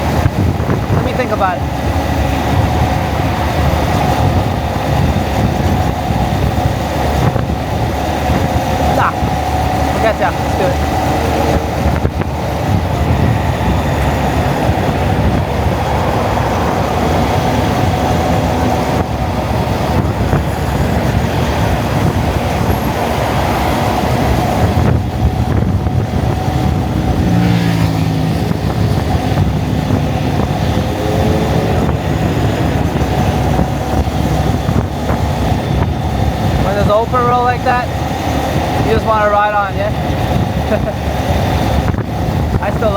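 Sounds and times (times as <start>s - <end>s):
motorcycle engine running: 0.0s - 42.9s
wind rushing over microphone: 0.0s - 42.9s.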